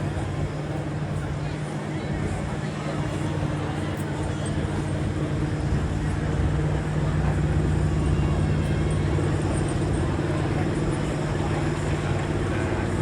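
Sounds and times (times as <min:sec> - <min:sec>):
truck engine running hard: 0:00.0 - 0:13.0.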